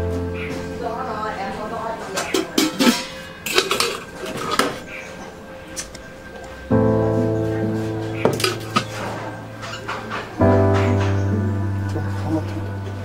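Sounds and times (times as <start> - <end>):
background music: 0.0 - 13.0
metal pot and lid clanking: 2.2 - 4.8, 8.3 - 10.2
loud sustained music chord: 5.0 - 13.0.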